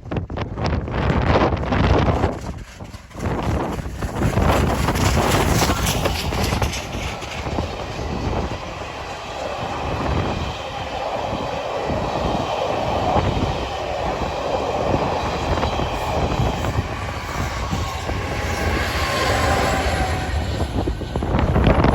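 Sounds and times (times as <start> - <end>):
train wheels running on rails: 0.1 - 21.9.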